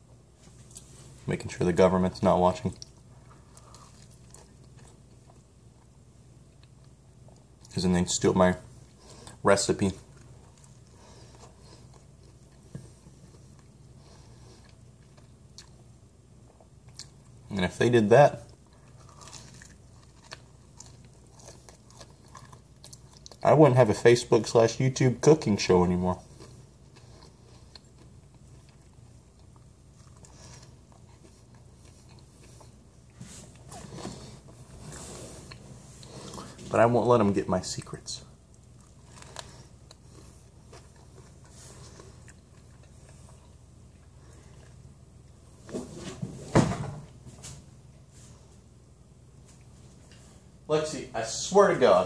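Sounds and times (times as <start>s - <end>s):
faint chewing: 2.2s - 7.8s, 8.8s - 17.5s, 18.4s - 24.0s, 25.3s - 45.4s.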